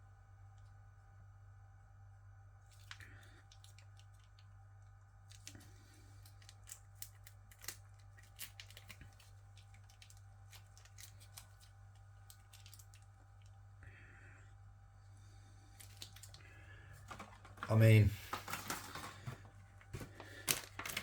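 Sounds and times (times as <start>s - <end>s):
steady low hum: 0.0s - 21.0s
plastic sachet crinkling: 2.7s - 4.4s, 5.2s - 13.5s, 15.8s - 21.0s.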